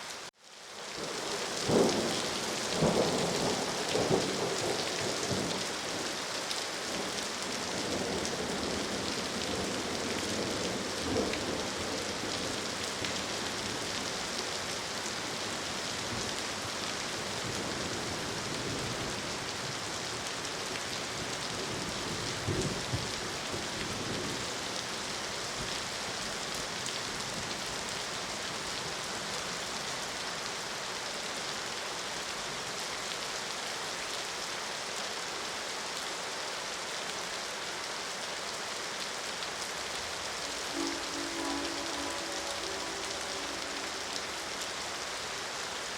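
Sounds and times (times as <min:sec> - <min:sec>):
steady rain falling: 0:00.0 - 0:45.9
thunder rumbling: 0:40.3 - 0:45.4.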